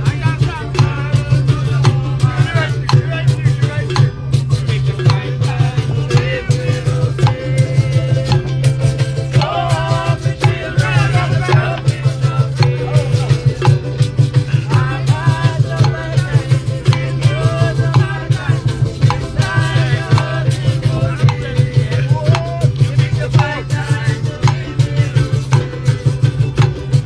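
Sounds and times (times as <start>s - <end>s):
drum strokes: 0.0s - 27.0s
voices singing a melody: 0.0s - 27.0s.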